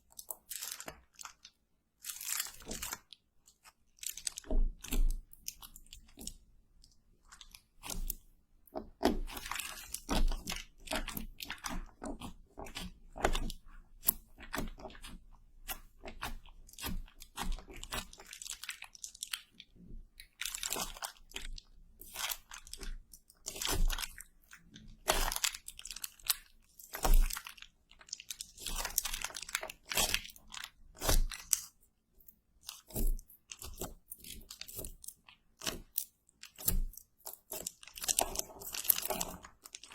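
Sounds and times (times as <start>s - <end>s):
crisp crunching: 0.1s - 3.1s, 4.0s - 6.3s, 16.2s - 19.6s, 20.2s - 31.7s, 32.6s - 39.9s.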